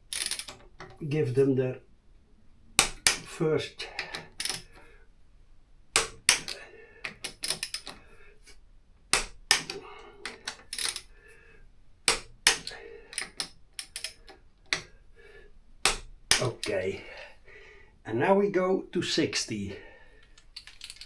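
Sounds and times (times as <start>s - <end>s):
torque wrench ratcheting and clicking: 0.0s - 0.6s, 4.2s - 4.8s, 6.0s - 8.0s, 9.1s - 11.1s, 12.1s - 14.3s, 15.8s - 16.8s.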